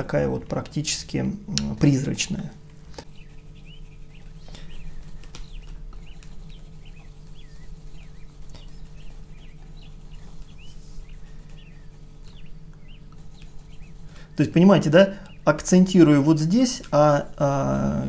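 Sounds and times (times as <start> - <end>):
steady low hum: 0.0 - 18.0
small bird chirping: 3.0 - 15.6.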